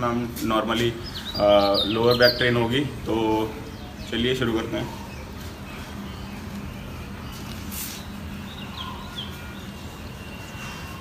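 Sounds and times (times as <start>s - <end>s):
faint bird chirps: 3.6s - 11.0s.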